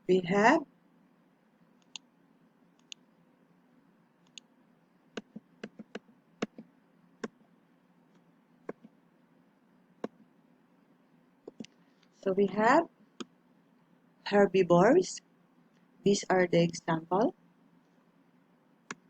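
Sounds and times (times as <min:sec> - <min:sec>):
faint steady hum: 0:00.0 - 0:19.0
computer mouse clicks: 0:01.8 - 0:02.1, 0:02.8 - 0:03.0, 0:04.2 - 0:04.5, 0:05.2 - 0:07.4, 0:11.5 - 0:11.8.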